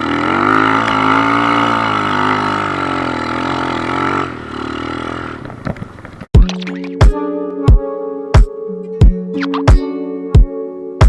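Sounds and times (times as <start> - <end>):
pit bike engine running: 0.0 - 6.5.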